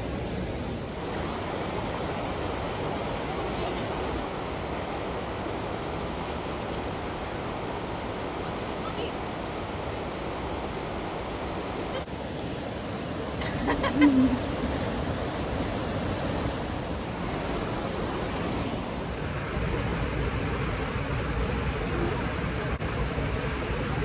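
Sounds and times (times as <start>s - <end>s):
creek water rushing: 0.0s - 24.0s.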